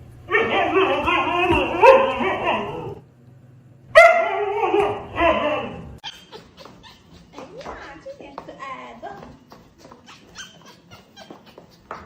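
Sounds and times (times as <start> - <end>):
dog whining and barking: 0.3 - 3.0, 4.0 - 8.2, 9.7 - 12.0.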